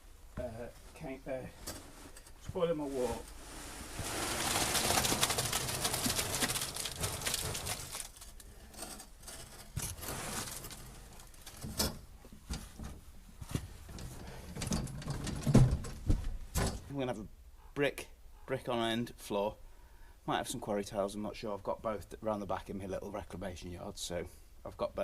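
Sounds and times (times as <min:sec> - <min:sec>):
knocks and scrapes: 0:00.4 - 0:16.9
wet concrete sliding out: 0:03.5 - 0:07.9.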